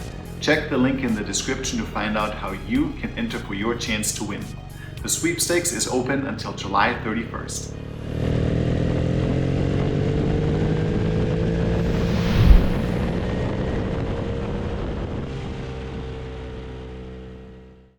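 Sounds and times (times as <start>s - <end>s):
motorcycle engine drone: 5.9s - 17.9s.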